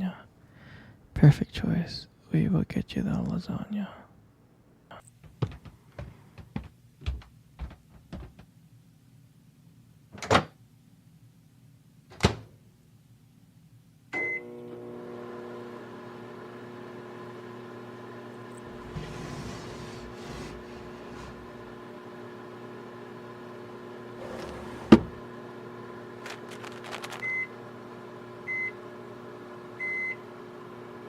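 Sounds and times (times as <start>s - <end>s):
microwave oven humming: 14.1s - 31.0s.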